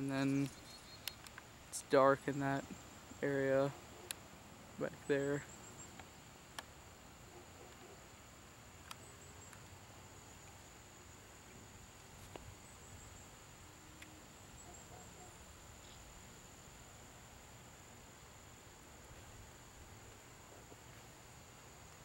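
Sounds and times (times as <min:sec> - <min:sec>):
soft clicks: 0:00.3 - 0:01.5.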